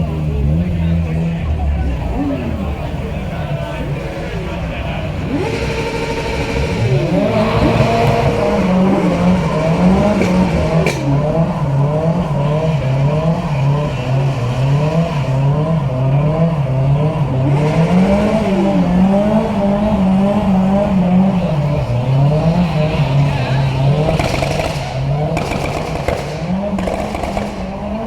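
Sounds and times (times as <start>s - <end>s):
car engine revving: 0.0s - 28.0s
sharp crack: 24.0s - 28.0s.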